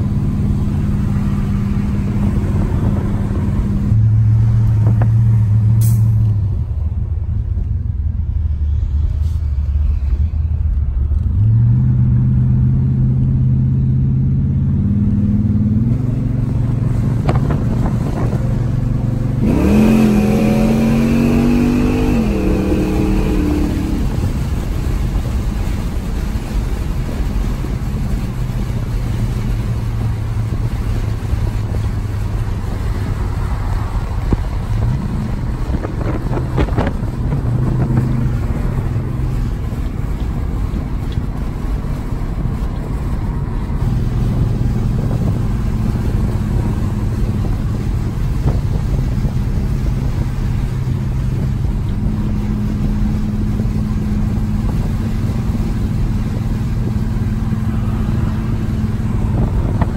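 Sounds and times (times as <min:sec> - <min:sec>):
engine revving: 0:00.0 - 0:06.5, 0:11.0 - 0:25.7, 0:29.3 - 0:59.9
car engine cruising: 0:00.0 - 0:59.9.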